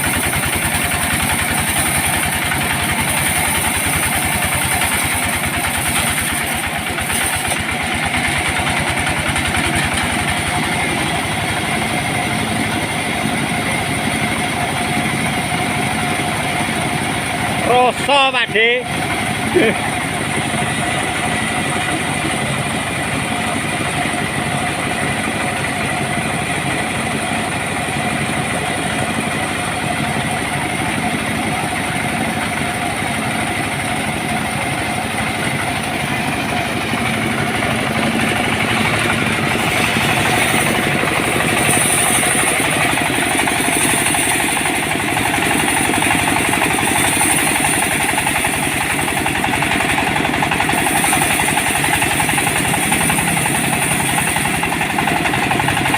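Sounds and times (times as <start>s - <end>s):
sawmill engine running: 0.0s - 55.9s.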